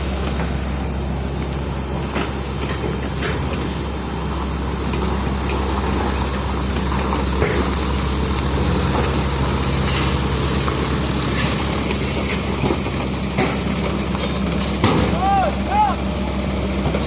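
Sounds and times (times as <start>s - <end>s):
excavator diesel engine running: 0.0s - 17.0s
brief high squeak: 6.2s - 6.6s, 7.5s - 8.4s.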